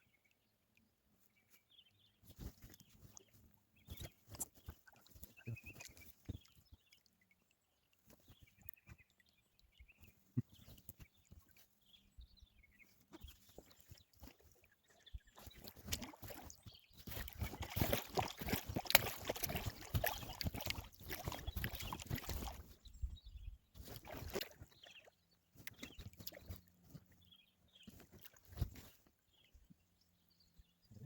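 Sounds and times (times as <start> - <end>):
paddle splashes: 2.4 - 7.0, 13.0 - 22.9, 23.8 - 27.1.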